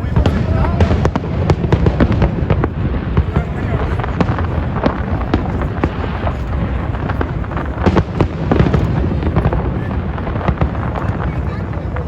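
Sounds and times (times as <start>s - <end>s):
fireworks bangs and crackles: 0.0s - 12.0s
fireworks rumbling: 0.0s - 12.0s.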